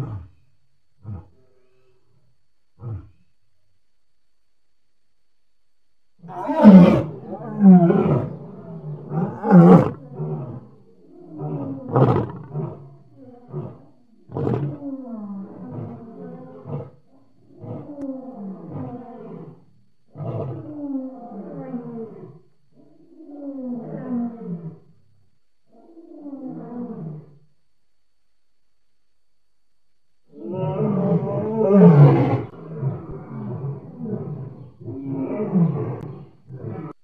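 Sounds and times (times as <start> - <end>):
lion roaring: 0.0 - 1.8, 2.8 - 3.3, 6.2 - 25.0, 25.7 - 27.4, 30.3 - 37.0.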